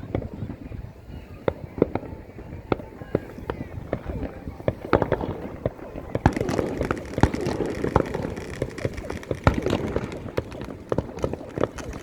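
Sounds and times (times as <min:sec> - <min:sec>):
fireworks popping and banging: 0:00.0 - 0:12.0.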